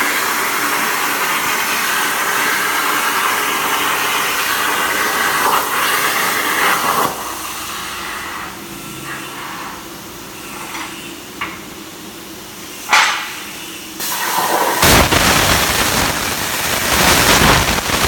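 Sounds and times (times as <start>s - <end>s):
plasma cutter torch hissing: 14.0s - 18.0s.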